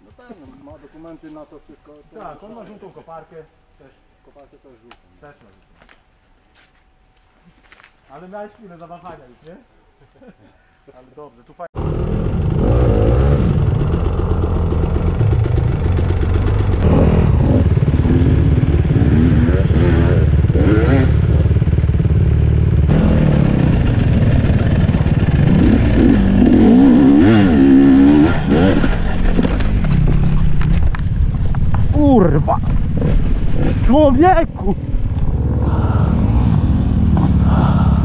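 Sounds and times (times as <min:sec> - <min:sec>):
dirt bike engine revving: 0:11.8 - 0:38.0.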